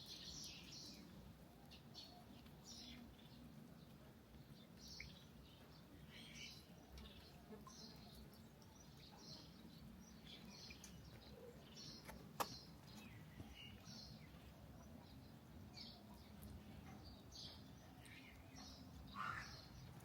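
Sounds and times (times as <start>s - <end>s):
low background noise: 0.0s - 20.0s
faint bird chirps: 5.9s - 20.0s.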